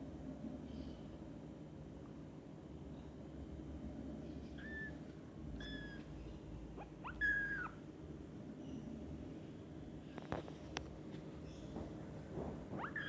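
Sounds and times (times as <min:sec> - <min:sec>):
kitten mewing: 0:06.8 - 0:07.8.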